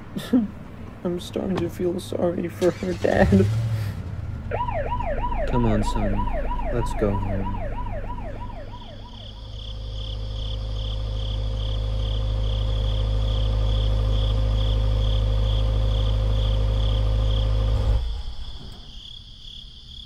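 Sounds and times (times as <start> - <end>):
car engine humming: 0.0 - 19.0
wailing siren: 4.3 - 18.8
crickets chirping: 5.1 - 20.0.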